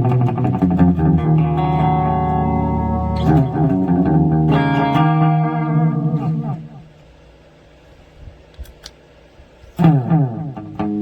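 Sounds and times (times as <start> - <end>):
electric guitar chords: 0.0 - 7.0, 9.8 - 11.0.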